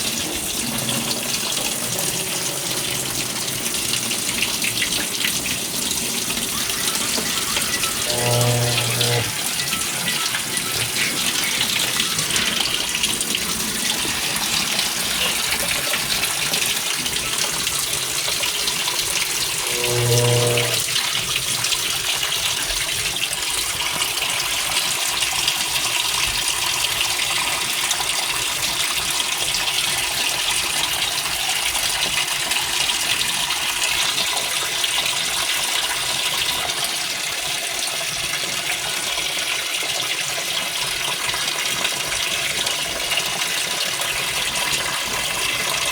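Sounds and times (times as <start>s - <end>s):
water flowing into washer: 0.0s - 45.9s
brief low tone: 8.0s - 9.4s, 19.7s - 20.8s.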